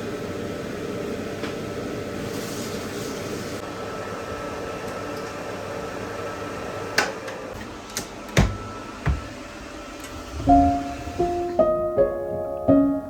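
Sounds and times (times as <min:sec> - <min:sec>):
kitchen appliance humming: 0:00.0 - 0:11.9.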